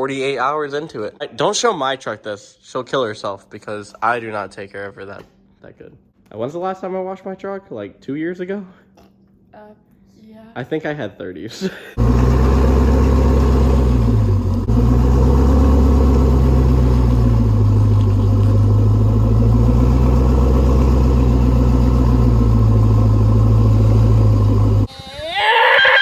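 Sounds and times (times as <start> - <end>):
truck engine rumbling: 12.0 - 24.9.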